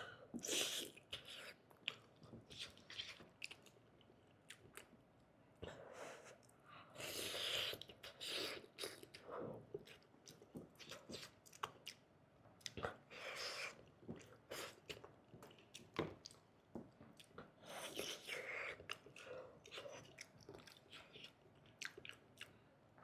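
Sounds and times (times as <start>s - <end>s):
wet chewing with lip smacks: 17.1s - 22.6s.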